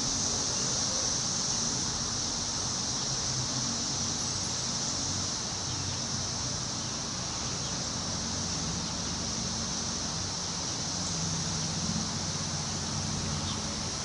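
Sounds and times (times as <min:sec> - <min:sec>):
high-pitched insect drone: 0:00.0 - 0:14.0
wind rustling leaves: 0:00.0 - 0:14.0.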